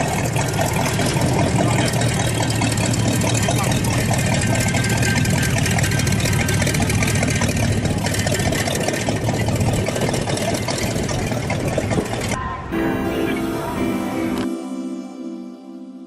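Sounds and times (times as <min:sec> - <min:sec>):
vehicle engine idling: 0:00.0 - 0:14.5.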